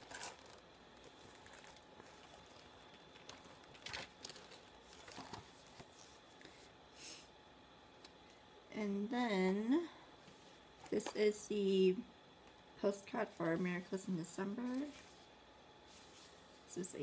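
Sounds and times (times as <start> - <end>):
packaging rustling and tapping: 0.1 - 6.0.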